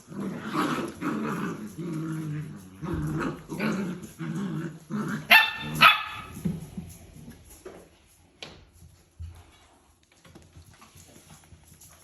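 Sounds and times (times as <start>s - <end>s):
puppy growling: 0.0s - 6.5s.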